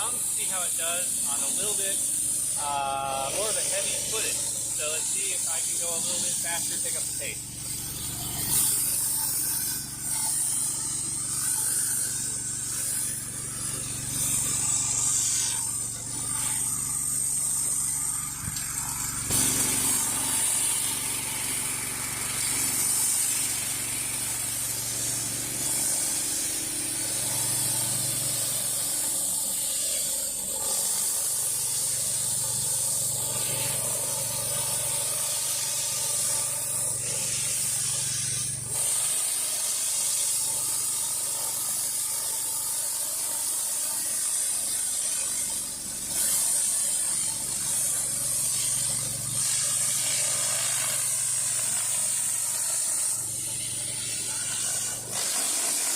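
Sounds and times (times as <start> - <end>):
steady low hum: 0.0 - 39.0
pressure-washer jets hissing: 0.0 - 55.9.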